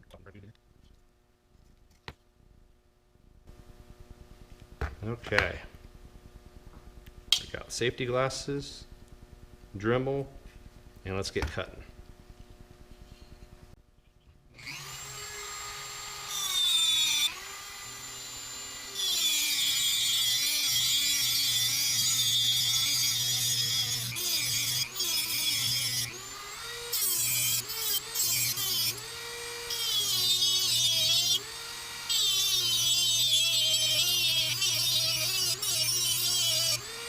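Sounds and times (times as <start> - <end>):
rotary tool grinding metal: 14.6 - 37.0.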